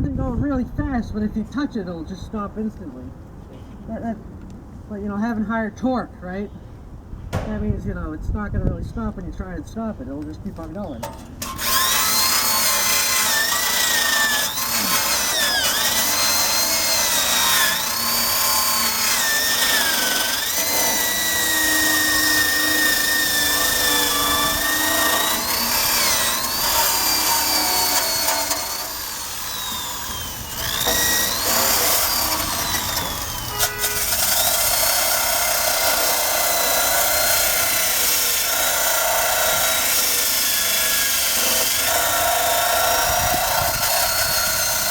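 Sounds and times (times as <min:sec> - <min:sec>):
wire brush grinding on metal: 0:11.0 - 0:44.9
electric drill motor whine: 0:11.1 - 0:44.9.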